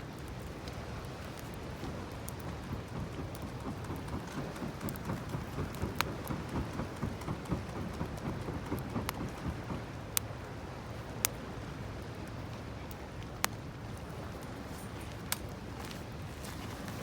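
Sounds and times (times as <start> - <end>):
campfire crackling: 0.0 - 17.0
sharp fire pops: 1.3 - 10.3.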